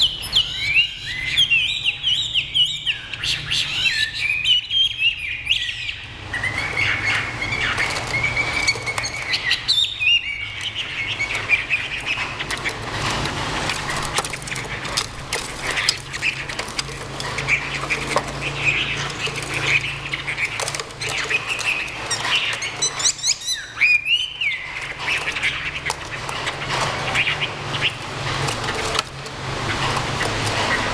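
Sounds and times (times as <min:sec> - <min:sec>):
songbirds calling and singing: 0:00.0 - 0:30.9
wings fluttering: 0:06.6 - 0:23.5, 0:24.6 - 0:30.9.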